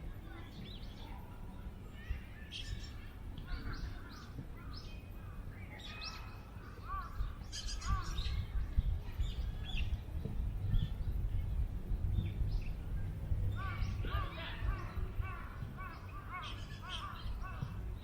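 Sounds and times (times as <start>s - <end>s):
small birds chirping: 0.0s - 18.0s
wind rumble on microphone: 0.0s - 18.0s.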